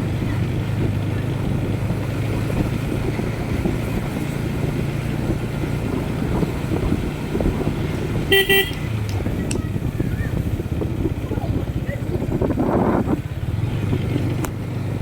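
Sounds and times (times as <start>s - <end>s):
motorcycle engine running: 0.0s - 15.0s
road rumble: 0.0s - 15.0s
wind: 0.0s - 15.0s
vehicle horn double toot: 8.2s - 8.9s.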